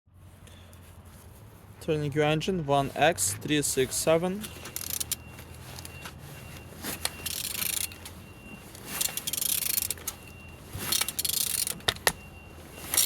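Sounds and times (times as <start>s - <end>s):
wrench metal clicks: 4.7s - 5.2s, 7.2s - 8.0s, 9.0s - 10.1s, 10.9s - 12.2s.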